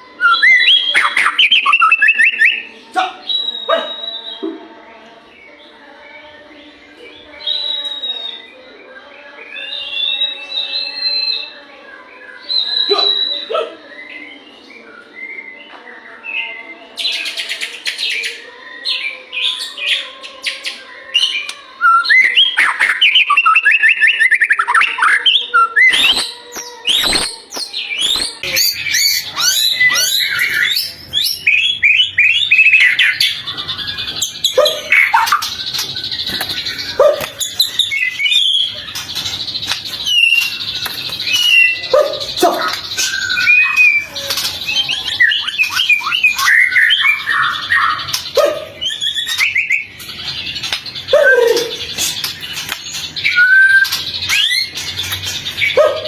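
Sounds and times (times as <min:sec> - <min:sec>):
bird whistling song: 0:00.0 - 0:04.6, 0:07.2 - 0:08.6, 0:09.4 - 0:11.6, 0:12.2 - 0:15.8, 0:16.4 - 0:56.0
bird sharp chips: 0:25.8 - 0:33.4, 0:34.1 - 0:56.0.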